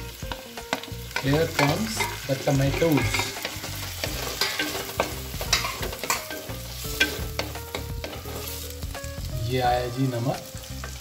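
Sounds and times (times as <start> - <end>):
tomatoes sizzling in a pot: 0.0 - 11.0
spatula scraping a pot: 1.2 - 8.7.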